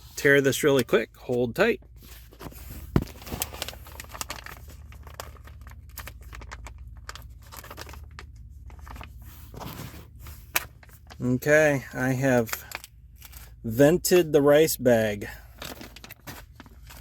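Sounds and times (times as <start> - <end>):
plastic crinkling: 2.3 - 9.8, 15.5 - 17.0
plastic pouch tearing: 3.0 - 9.0.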